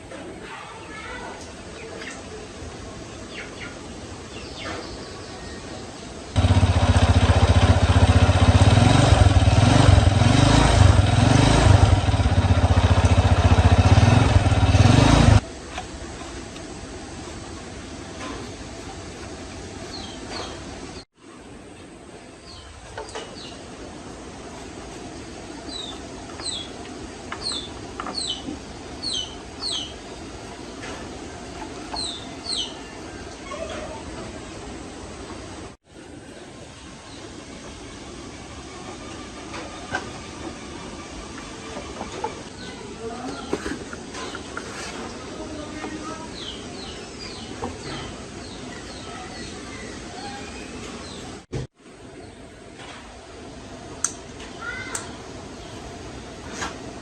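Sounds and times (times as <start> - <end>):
small motorcycle engine running: 6.3 - 15.5
small bird chirping: 25.7 - 26.8, 27.4 - 30.0, 31.9 - 33.0, 46.0 - 51.3.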